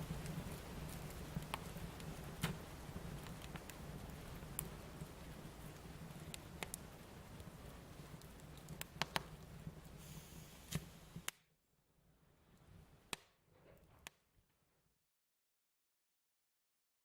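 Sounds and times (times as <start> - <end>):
steady low hiss: 0.0 - 11.3
wood fire crackling: 0.0 - 11.5.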